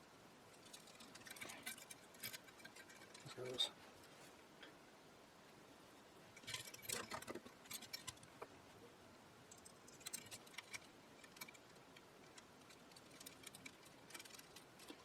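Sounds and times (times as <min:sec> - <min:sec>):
hand tools rattling: 0:00.5 - 0:03.7, 0:09.5 - 0:15.0
small parts clicking: 0:09.5 - 0:15.0.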